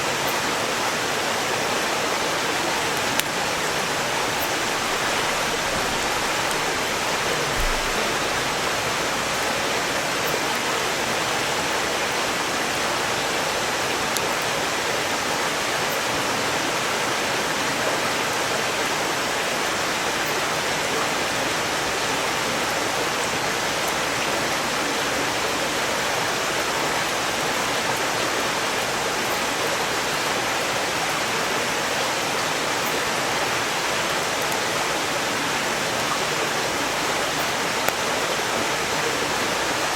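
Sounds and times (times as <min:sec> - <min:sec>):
stream rushing over rocks: 0:00.0 - 0:39.9
firewood crackling: 0:02.9 - 0:08.6.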